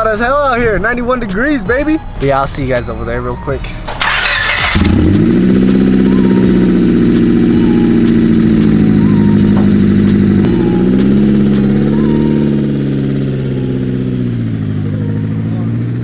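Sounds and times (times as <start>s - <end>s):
engine cranking: 0.0s - 16.0s
car engine idling loudly: 3.9s - 16.0s.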